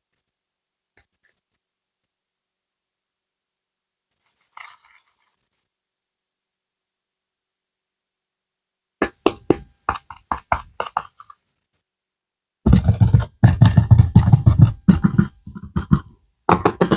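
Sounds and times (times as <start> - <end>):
sharp clicks and taps: 9.0 - 11.3, 12.7 - 16.9
clay crackling and squishing: 9.0 - 11.4, 12.7 - 16.9.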